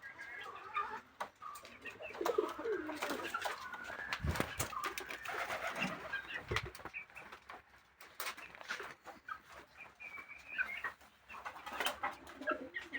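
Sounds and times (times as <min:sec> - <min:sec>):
birds cooing: 0:01.5 - 0:06.8, 0:11.6 - 0:12.9.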